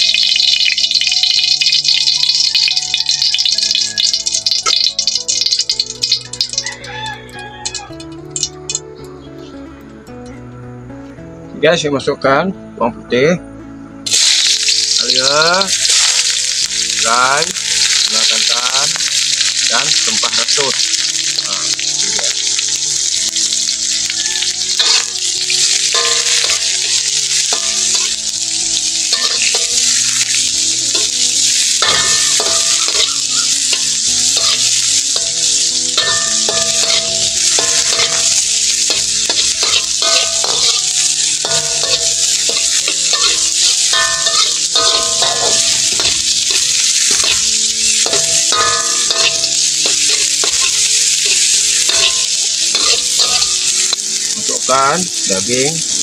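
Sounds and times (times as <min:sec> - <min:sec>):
sizzling in hot oil: 0:00.0 - 0:08.9, 0:14.0 - 0:56.0
metal spatula scraping a pan: 0:15.7 - 0:54.3.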